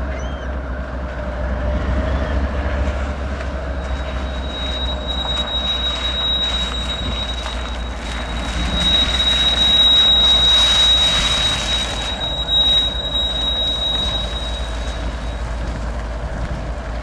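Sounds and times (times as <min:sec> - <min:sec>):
freight train rumbling: 0:00.0 - 0:17.0
high wheel squeal: 0:03.4 - 0:16.1.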